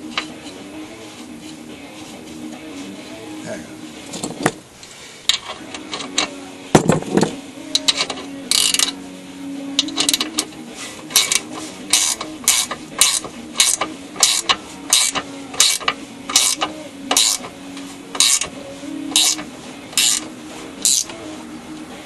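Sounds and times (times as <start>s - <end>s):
ratchet wrench clicking: 7.7s - 9.0s, 9.8s - 17.5s, 18.1s - 18.5s, 19.1s - 19.4s, 20.0s - 21.1s.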